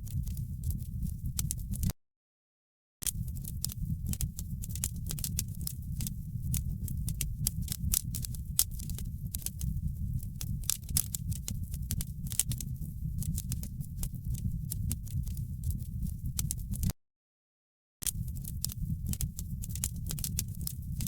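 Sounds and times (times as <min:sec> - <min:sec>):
wood fire crackling: 0:03.1 - 0:16.9, 0:18.1 - 0:21.0.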